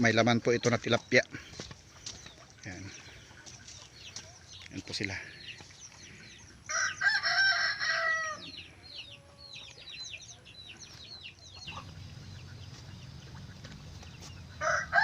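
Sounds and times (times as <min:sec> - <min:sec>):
rooster crowing: 0:06.7 - 0:08.5, 0:14.6 - 0:15.0.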